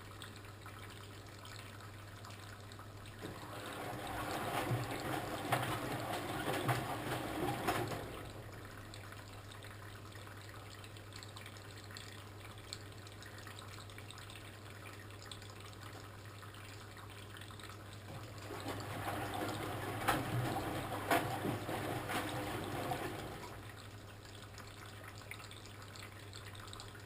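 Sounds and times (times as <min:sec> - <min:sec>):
water sloshing in washing machine: 0:03.0 - 0:10.2, 0:15.3 - 0:27.0.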